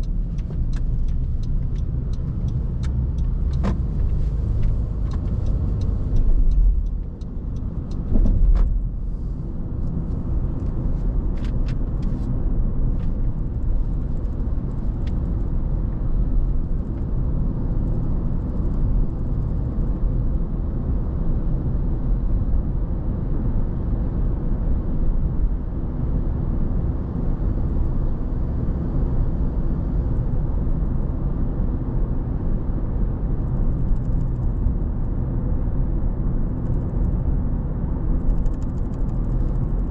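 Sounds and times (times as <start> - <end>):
car road rumble: 0.0 - 39.9.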